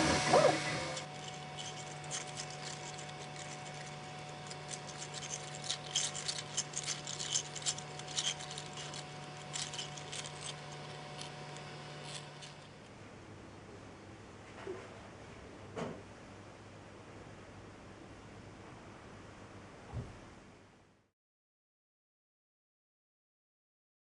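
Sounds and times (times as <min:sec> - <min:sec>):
low machine hum: 0:00.0 - 0:21.1.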